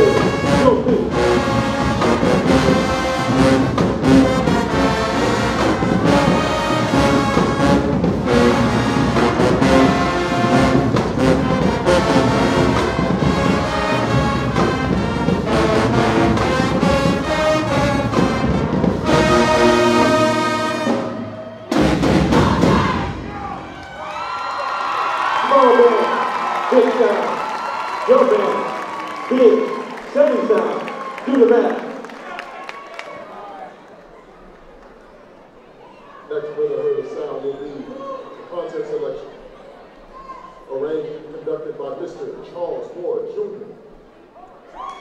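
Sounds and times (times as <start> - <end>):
marching band brass and drums: 0.0 - 32.2
crowd noise: 0.0 - 45.0.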